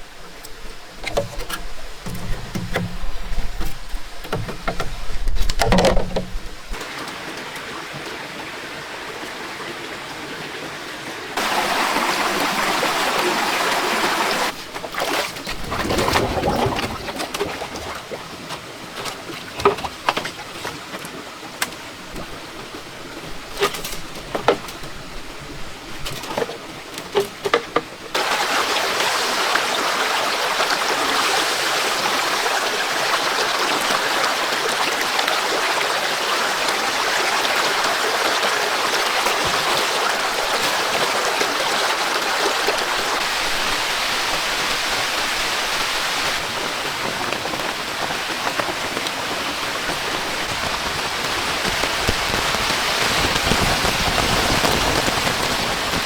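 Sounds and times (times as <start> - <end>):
heavy rain downpour: 6.7 - 15.2, 28.0 - 56.0.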